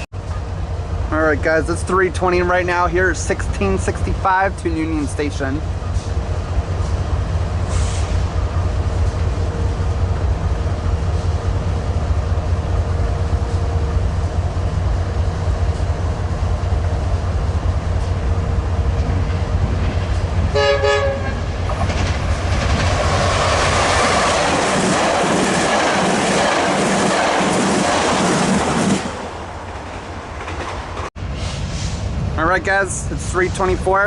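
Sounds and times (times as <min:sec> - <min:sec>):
train rumble: 0:00.0 - 0:34.0
wheels rattling on rail: 0:00.2 - 0:34.0
train horn toot: 0:20.5 - 0:21.5.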